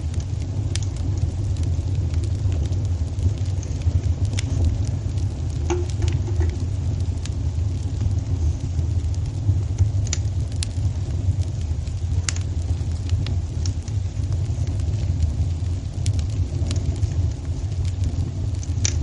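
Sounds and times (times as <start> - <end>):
fire crackling and popping: 0.0 - 19.0
flames rumbling: 0.0 - 19.0.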